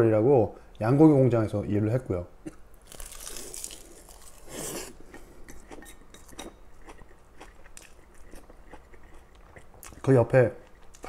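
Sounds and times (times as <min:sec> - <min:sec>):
noodles being chewed: 0:02.9 - 0:11.0.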